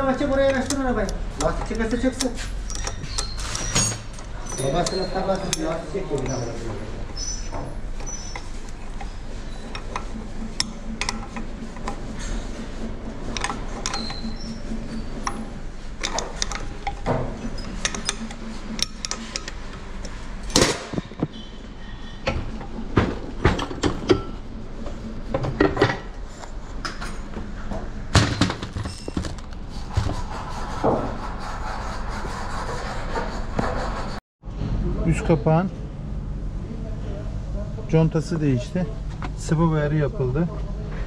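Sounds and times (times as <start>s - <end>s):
steady low hum: 0.0s - 28.6s, 29.4s - 41.0s
metal tools clinking and knocking: 2.0s - 6.6s.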